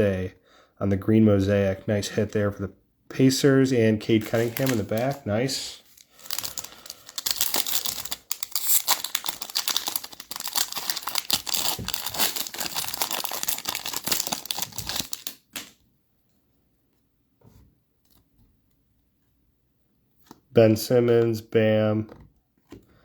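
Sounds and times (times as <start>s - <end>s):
foil wrapper tearing and crinkling: 4.2s - 5.2s, 5.8s - 15.7s.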